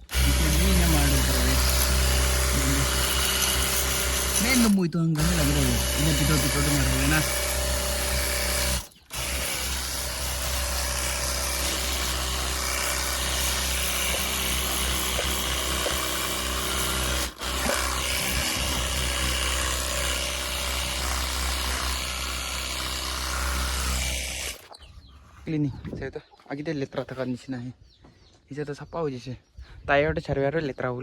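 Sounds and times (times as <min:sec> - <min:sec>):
pressure washer motor humming: 0:00.0 - 0:24.7.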